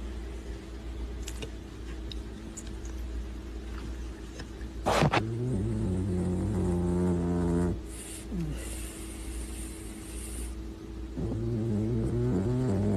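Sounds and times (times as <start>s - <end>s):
hiss: 7.9s - 10.6s.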